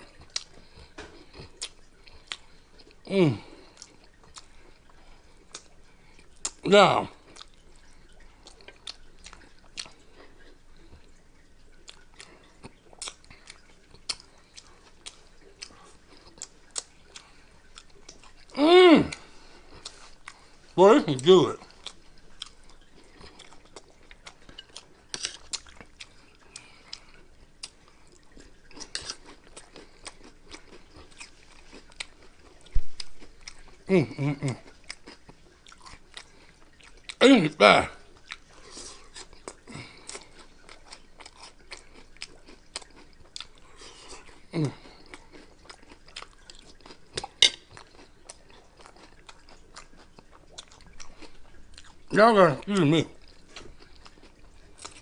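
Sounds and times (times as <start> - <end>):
wet mouth clicks: 0.0 - 3.1, 3.8 - 6.7, 11.8 - 20.5, 38.2 - 52.0
chewing crunchy snacks: 0.0 - 55.0.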